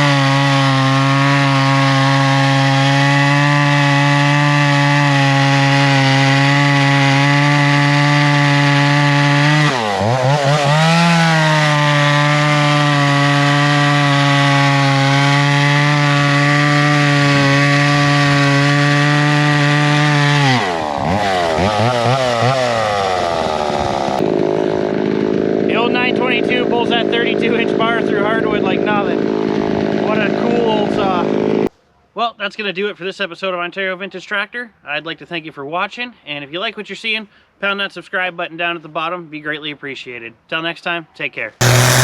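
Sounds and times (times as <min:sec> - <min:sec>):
chainsaw cutting wood: 0:00.0 - 0:31.7, 0:41.6 - 0:42.0.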